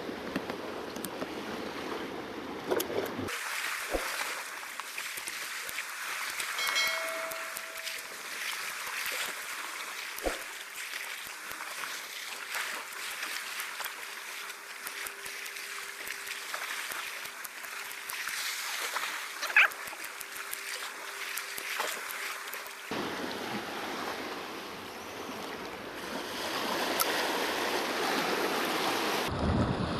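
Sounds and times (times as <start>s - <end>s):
sea water splashing on rocks: 3.2s - 24.8s.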